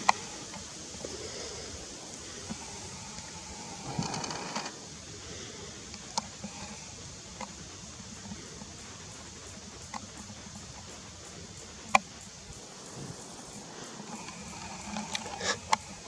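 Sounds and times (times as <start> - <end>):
faint high hiss: 0.0 - 16.0
sharp animal clicks: 7.3 - 16.0.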